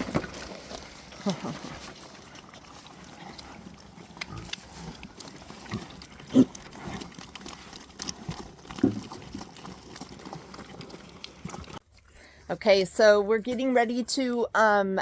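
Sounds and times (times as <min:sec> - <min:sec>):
soft feeding noises: 0:00.0 - 0:12.5
pigs grunting: 0:01.0 - 0:11.8.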